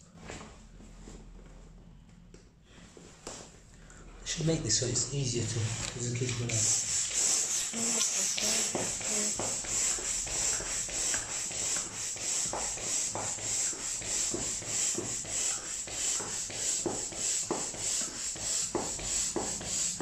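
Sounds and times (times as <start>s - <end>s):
hand air pump hissing: 6.5s - 20.0s.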